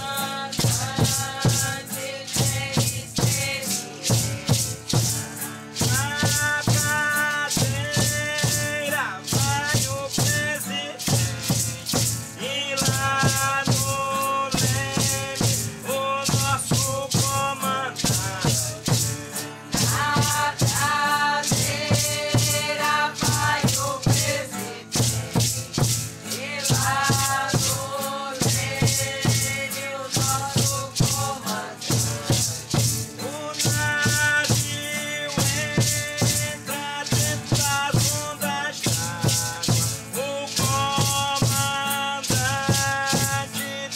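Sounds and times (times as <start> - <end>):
shaken rattles: 0.0 - 43.9
voices chanting: 19.8 - 25.1, 26.3 - 32.6.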